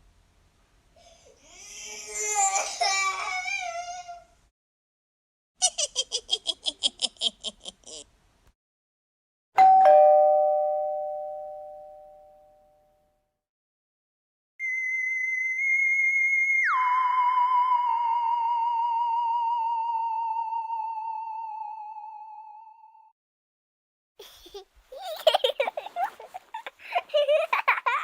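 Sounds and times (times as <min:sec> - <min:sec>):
two-note doorbell chime: 0:09.6 - 0:13.0.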